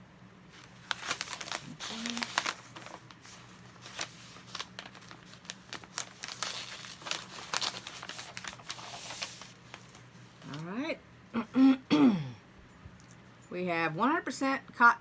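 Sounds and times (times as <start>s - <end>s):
packaging crinkling: 0.5s - 10.7s.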